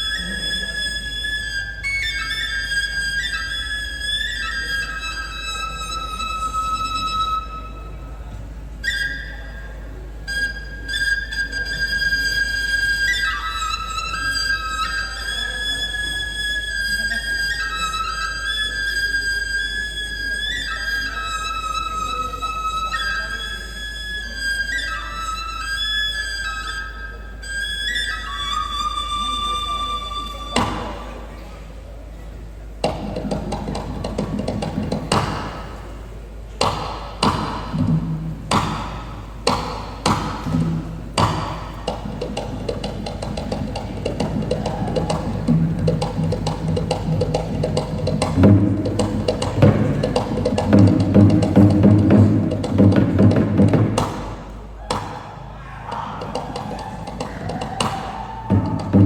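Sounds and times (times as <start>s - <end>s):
hand drum slaps and taps: 32.8s - 35.8s, 36.6s - 37.9s, 38.5s - 55.3s, 56.2s - 59.0s
gamelan melody in held notes: 32.8s - 54.5s
low booming drum tone: 32.8s - 55.3s, 55.9s - 59.0s.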